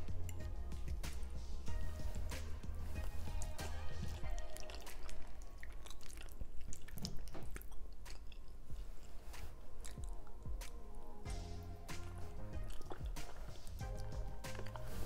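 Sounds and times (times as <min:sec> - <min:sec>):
person chewing and smacking: 0:00.0 - 0:15.0.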